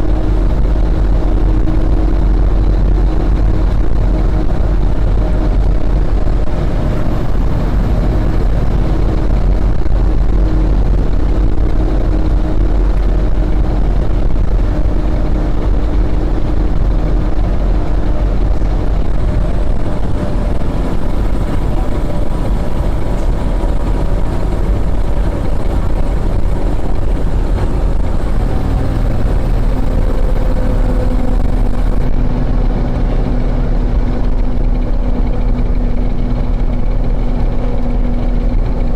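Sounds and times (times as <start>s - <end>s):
diesel engine low rumble: 0.0s - 38.9s.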